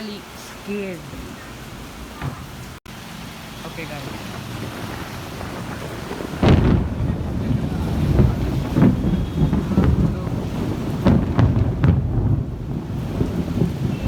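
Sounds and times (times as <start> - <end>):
wind buffeting microphone: 0.0 - 14.0
sharp cracks: 4.0 - 14.0.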